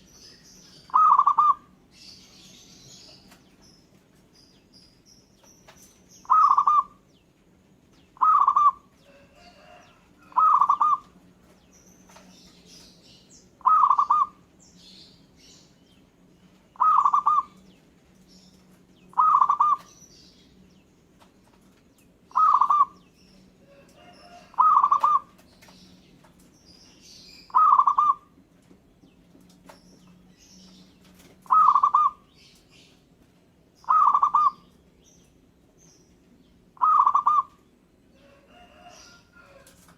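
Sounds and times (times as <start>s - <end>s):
dove cooing trill: 0.9s - 1.7s, 6.2s - 7.0s, 8.2s - 11.1s, 13.6s - 14.4s, 16.8s - 17.6s, 19.1s - 19.9s, 22.3s - 23.0s, 23.7s - 25.4s, 27.5s - 28.3s, 31.4s - 32.3s, 33.8s - 34.7s, 36.8s - 37.6s
faint high bird chirps: 22.3s - 26.0s.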